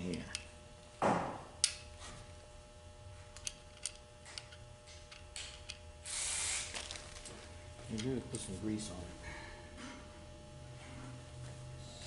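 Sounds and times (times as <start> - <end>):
short hiss: 6.0 - 6.7.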